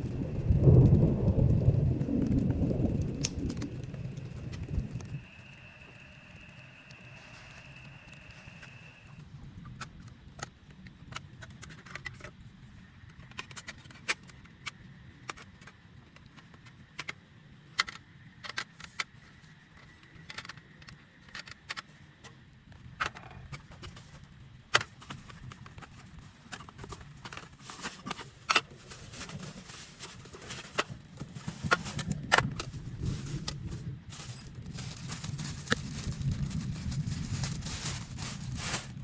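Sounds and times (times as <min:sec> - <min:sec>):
rain on a tent: 0:00.0 - 0:08.4, 0:26.1 - 0:39.0.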